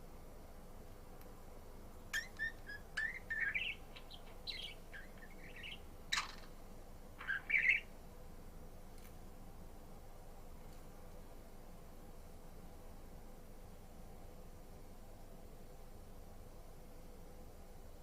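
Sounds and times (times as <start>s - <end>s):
budgerigar chirping: 2.2s - 6.5s, 7.2s - 7.9s.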